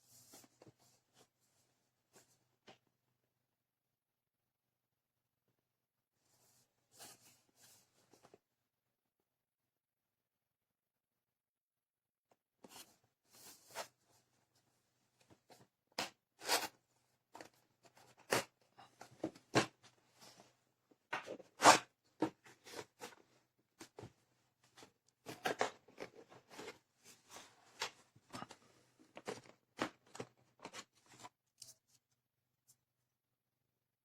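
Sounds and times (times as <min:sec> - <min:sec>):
clicks and crinkles of handling: 0:22.2 - 0:32.2.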